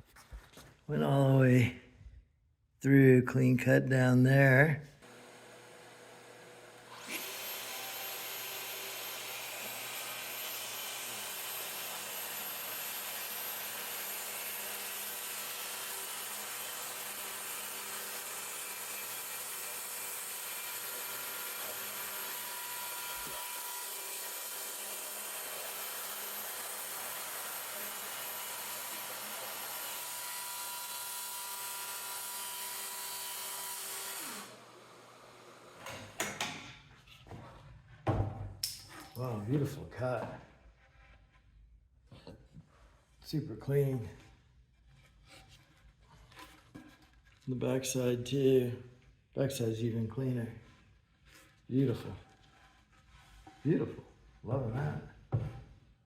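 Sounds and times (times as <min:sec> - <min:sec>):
dust extractor running: 0:05.0 - 0:35.9
saw winding down: 0:05.0 - 0:35.9
circular saw cutting wood: 0:05.0 - 0:36.3, 0:49.5 - 0:55.1.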